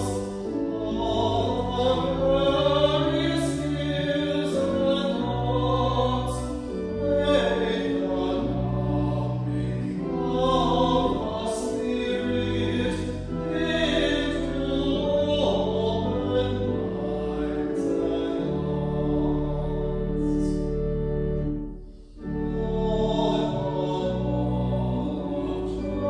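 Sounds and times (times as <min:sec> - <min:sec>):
choir singing sacred music: 0:00.0 - 0:26.0
sustained instrumental accompaniment: 0:00.0 - 0:26.0.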